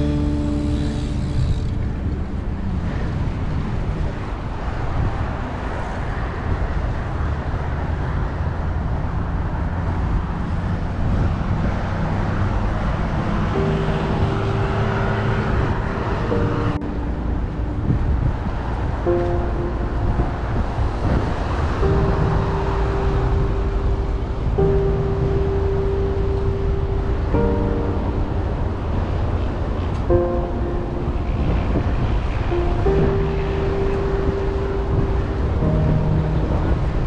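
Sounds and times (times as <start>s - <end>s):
bicycle rolling noise: 0.0s - 5.9s
wind rushing on microphone: 0.0s - 37.0s.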